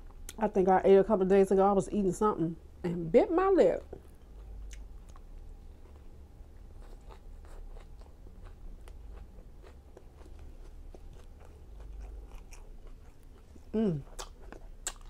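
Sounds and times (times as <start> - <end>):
chewing and biting food: 4.0 - 15.0.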